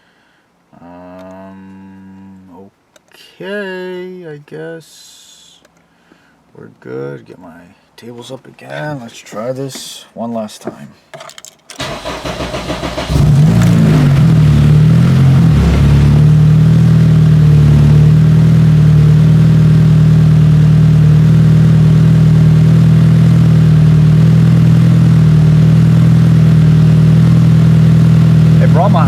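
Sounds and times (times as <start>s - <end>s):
car engine starter cranking: 11.7s - 16.6s
car engine idling: 11.8s - 29.0s.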